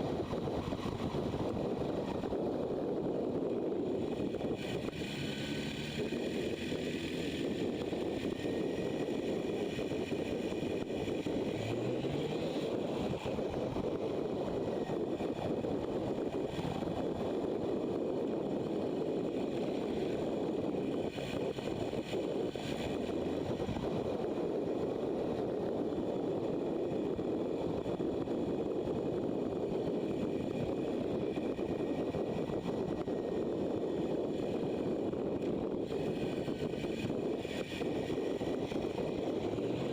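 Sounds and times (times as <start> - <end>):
motorcycle engine running: 0.0 - 39.9
wind and road rush: 0.0 - 39.9.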